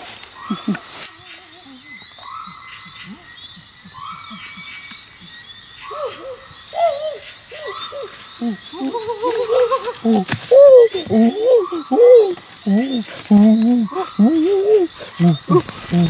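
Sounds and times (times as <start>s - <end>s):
repeating animal call: 5.8s - 16.0s.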